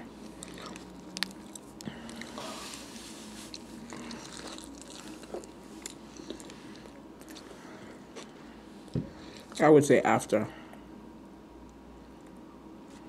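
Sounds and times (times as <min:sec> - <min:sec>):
chewing soft sandwich: 0:00.2 - 0:08.5.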